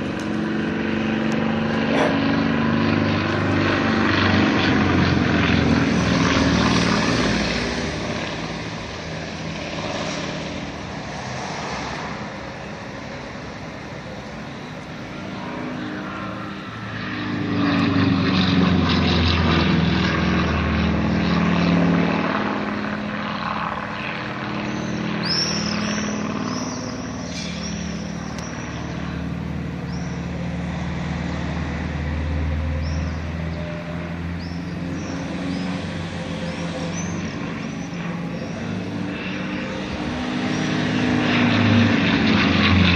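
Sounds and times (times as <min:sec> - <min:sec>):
propeller planes flying over: 0:00.0 - 0:42.9.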